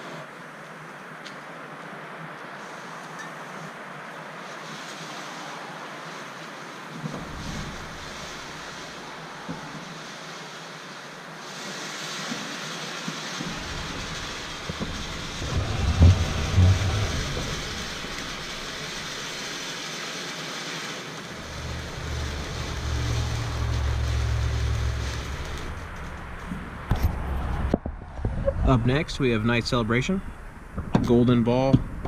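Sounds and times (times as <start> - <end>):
fountain firework hissing and crackling: 0.0 - 27.8, 28.7 - 31.5
low thumps: 13.5 - 19.2
low rumble: 13.5 - 19.3, 21.3 - 29.0.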